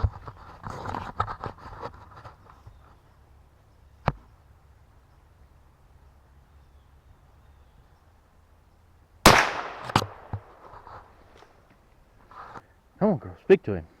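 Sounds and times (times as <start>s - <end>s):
gunshot with echo: 9.3s - 10.7s.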